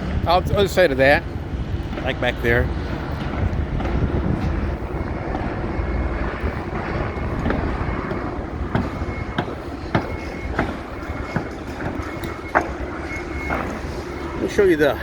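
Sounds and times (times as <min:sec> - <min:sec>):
low rumble: 0:00.0 - 0:15.0
sharp knocks: 0:07.4 - 0:13.8.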